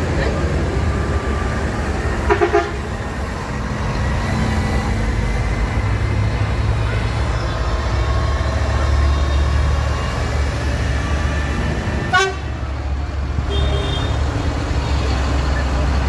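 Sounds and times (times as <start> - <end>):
tractor engines rumbling: 0.0 - 16.0
vehicle horn tooting: 2.3 - 2.8, 12.1 - 12.5, 13.5 - 14.2.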